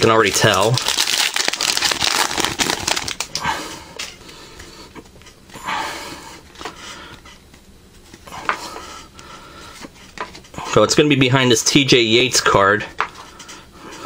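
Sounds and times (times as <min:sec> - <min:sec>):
cards rustling: 0:00.0 - 0:03.4
close breathing: 0:03.4 - 0:07.4, 0:08.2 - 0:10.7.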